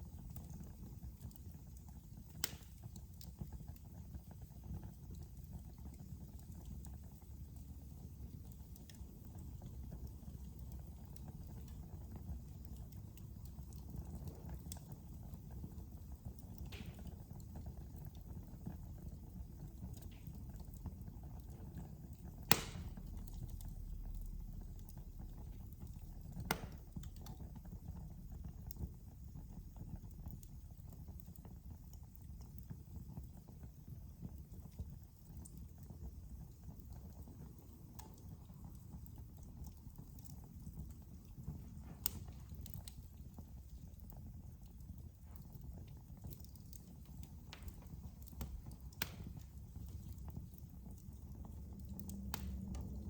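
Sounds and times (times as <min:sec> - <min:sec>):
faint fire crackles: 0:00.0 - 0:53.0
low rumble of flames: 0:00.0 - 0:53.0
sharp fire pops: 0:02.2 - 0:03.4, 0:16.4 - 0:18.1, 0:19.6 - 0:29.8, 0:40.2 - 0:50.9, 0:52.1 - 0:53.0.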